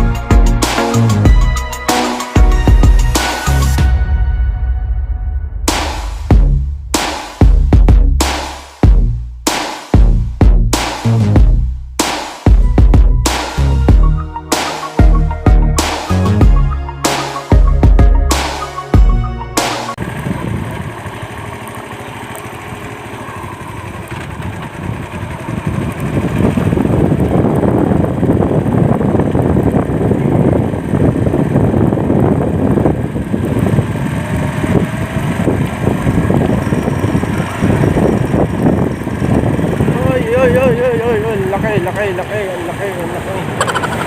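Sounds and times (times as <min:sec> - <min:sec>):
motorcycle engine running: 0:00.0 - 0:03.9, 0:05.7 - 0:09.3, 0:10.0 - 0:14.3, 0:14.9 - 0:19.3, 0:20.0 - 0:44.0
wind rushing over microphone: 0:20.0 - 0:21.2, 0:23.4 - 0:44.0.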